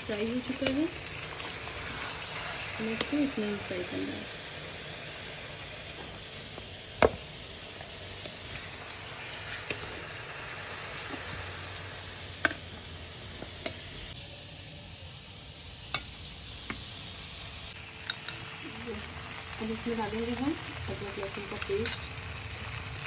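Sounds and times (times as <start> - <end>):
oil sizzling: 0.0 - 23.0
steel spoon clinking on pan: 18.0 - 18.4, 21.5 - 22.1.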